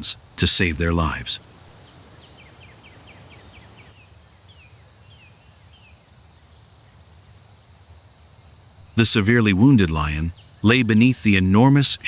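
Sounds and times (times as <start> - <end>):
high insect drone: 0.0 - 12.0
falling bird chirps: 0.6 - 4.0.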